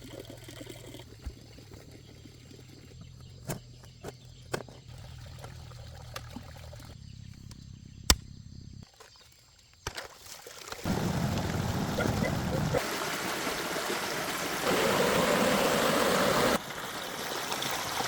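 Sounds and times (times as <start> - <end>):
water trickling and pouring: 0.0 - 3.3, 4.8 - 7.0, 10.2 - 18.0
running water rushing: 10.5 - 18.0.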